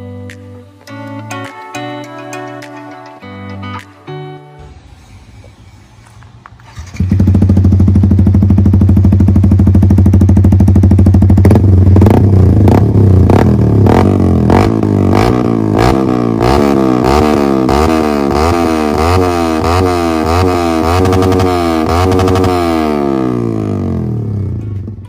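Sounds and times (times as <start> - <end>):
motorcycle engine revving: 6.6 - 25.0.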